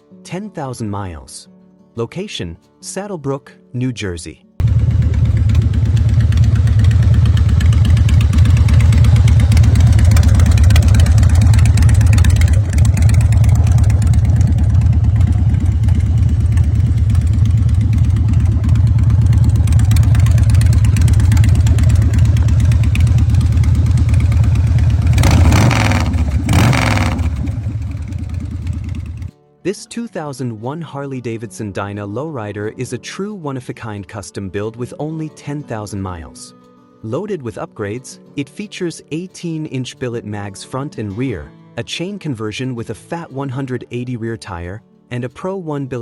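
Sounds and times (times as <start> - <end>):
motorcycle engine running: 4.6 - 29.3.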